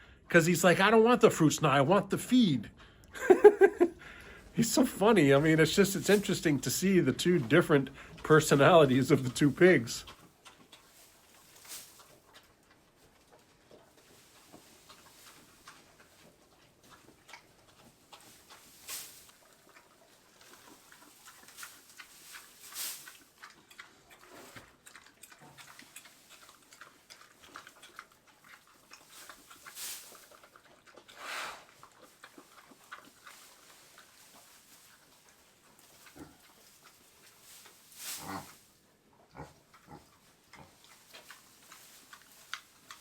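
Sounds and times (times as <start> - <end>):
pigs crunching and chewing: 0.0 - 43.0
pigs breathy noises: 3.8 - 4.6, 7.8 - 8.8, 11.9 - 38.6.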